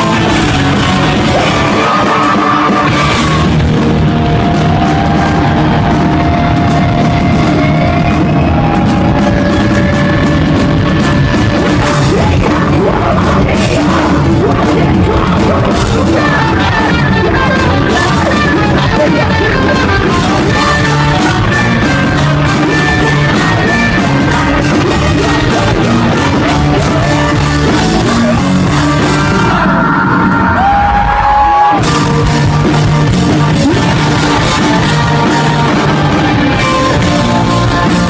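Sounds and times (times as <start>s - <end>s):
rock band playing live: 0.0s - 38.0s.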